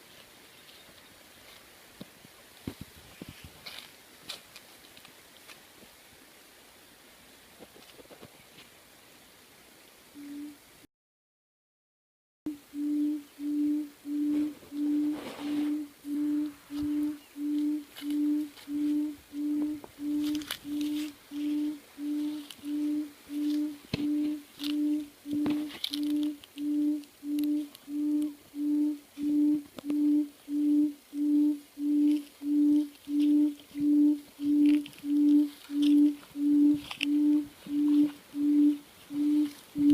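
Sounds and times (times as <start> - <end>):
electronic hoot call from speaker: 12.5 - 39.9.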